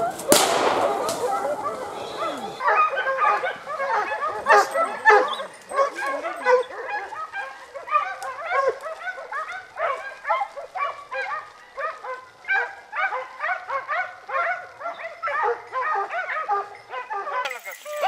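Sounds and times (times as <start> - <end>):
hounds baying and yelping: 0.0 - 18.0.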